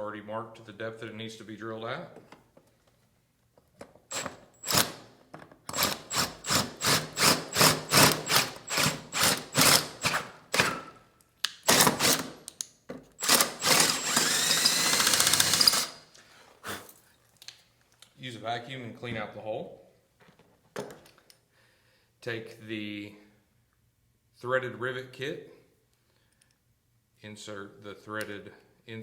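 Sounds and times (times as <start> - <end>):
power drill whirring in bursts: 4.1 - 5.0, 5.7 - 11.0, 11.6 - 12.4, 13.2 - 16.1.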